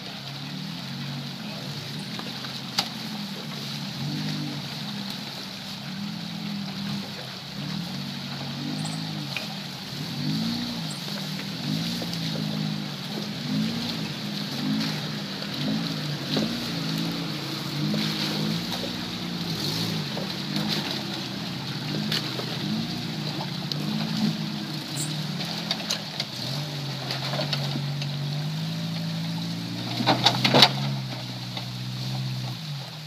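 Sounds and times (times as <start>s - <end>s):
engine revving: 0.0s - 33.0s
knocks and clatter: 29.7s - 32.6s.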